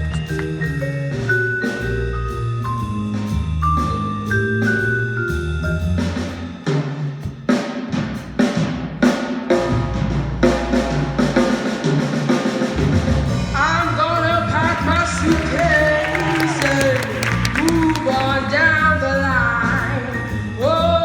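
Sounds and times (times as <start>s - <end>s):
bass guitar notes: 0.0s - 6.7s, 12.8s - 21.0s
drum kit playing fills: 0.0s - 21.0s.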